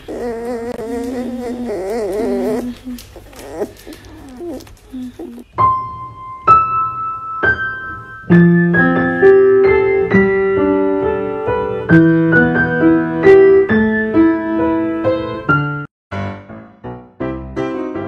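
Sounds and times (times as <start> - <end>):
piano music: 5.0 - 18.0.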